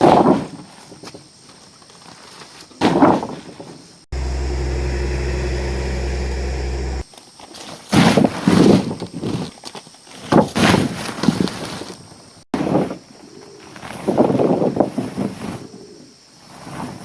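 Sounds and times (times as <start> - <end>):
low machine hum: 4.2 - 7.0.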